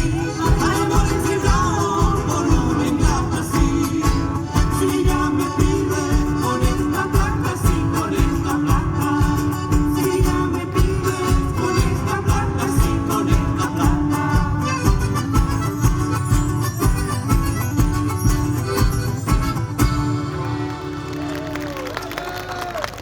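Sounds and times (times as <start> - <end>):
person singing: 0.0 - 15.8
low drum beat: 0.0 - 18.6
guitar: 0.0 - 22.7.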